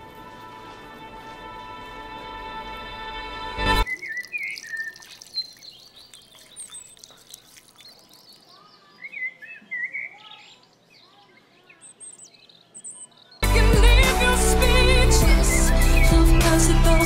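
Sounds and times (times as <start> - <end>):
birds chirping: 3.6 - 13.5, 14.2 - 17.0.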